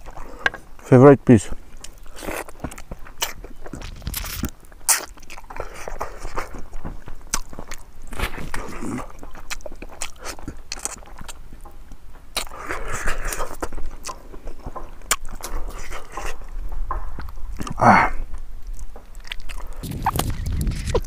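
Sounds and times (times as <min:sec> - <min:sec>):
man chewing and lip-smacking: 0:00.0 - 0:00.5, 0:01.7 - 0:17.8, 0:18.4 - 0:21.0
loud mouth sound: 0:19.5 - 0:21.0.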